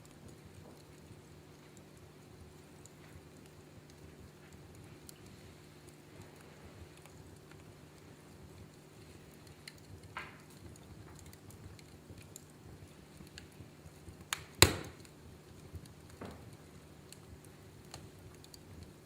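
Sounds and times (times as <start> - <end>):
low steady hiss: 0.0 - 19.0
wood fire crackling: 0.0 - 19.0
sharp fire pops: 14.2 - 18.6.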